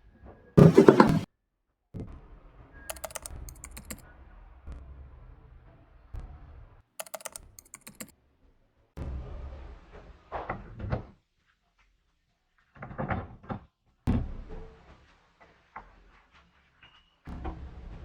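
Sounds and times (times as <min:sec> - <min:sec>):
clunks and knocks of hard objects: 0:00.6 - 0:01.3.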